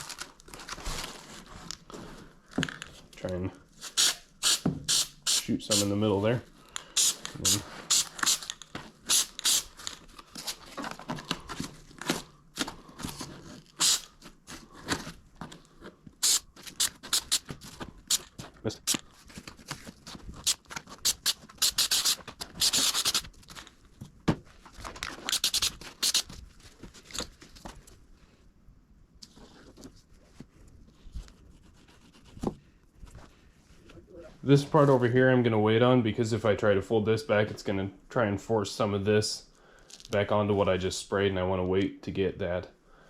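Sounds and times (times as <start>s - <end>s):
aerosol can hissing: 3.8s - 5.9s, 7.0s - 8.5s, 9.1s - 9.7s, 13.8s - 14.1s, 16.2s - 17.5s, 20.4s - 23.2s, 25.3s - 26.2s.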